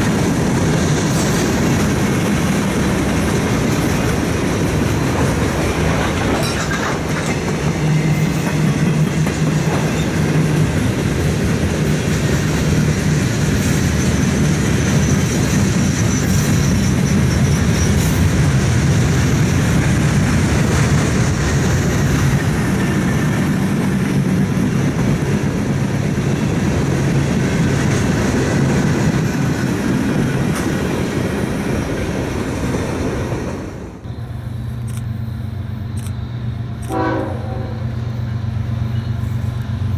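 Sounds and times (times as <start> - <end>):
train wheels clattering: 0.0 - 25.4.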